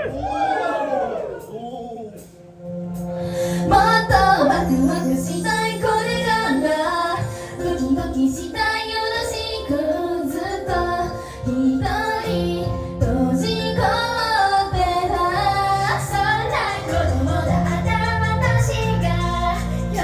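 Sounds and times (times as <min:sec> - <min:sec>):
women singing pop song: 0:03.3 - 0:20.0
backing track with bass line: 0:11.8 - 0:20.0.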